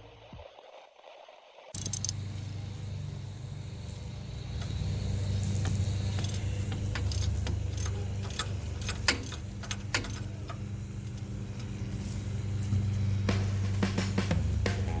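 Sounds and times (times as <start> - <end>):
light metallic clinks: 1.8 - 2.9, 3.9 - 12.9
steady low hum: 1.8 - 15.0.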